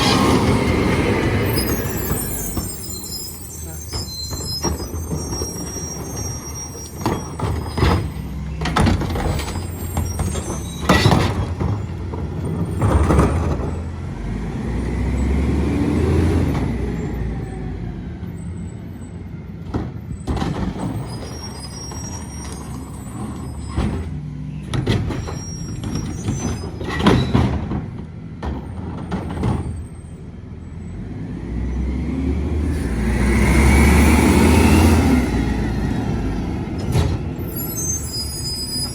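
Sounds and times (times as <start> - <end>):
diesel engine revving: 0.0 - 5.3, 11.3 - 18.6, 30.5 - 38.9.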